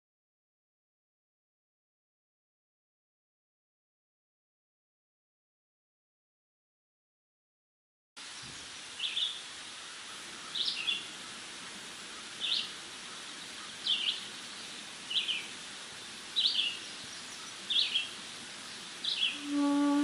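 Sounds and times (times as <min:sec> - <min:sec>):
outdoor ambience hiss: 0:08.2 - 0:20.0.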